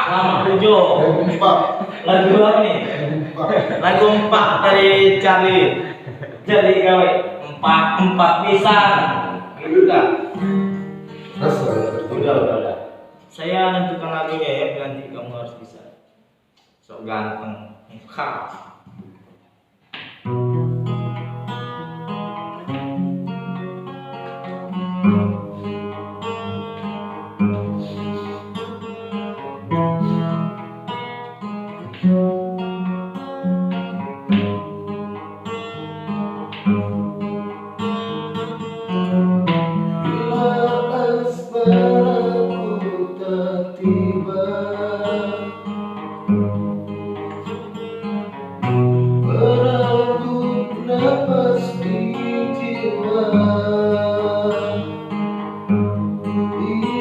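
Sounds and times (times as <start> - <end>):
acoustic guitar playing: 0.0 - 14.7, 19.9 - 57.0
person singing: 11.2 - 12.3, 40.0 - 45.7, 49.2 - 55.0, 56.2 - 57.0.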